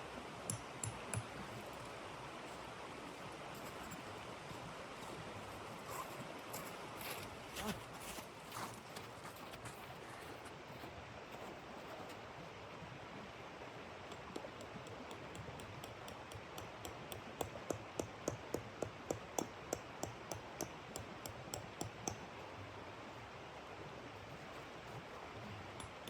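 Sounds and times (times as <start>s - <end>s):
footsteps crunching in snow: 3.1s - 11.5s.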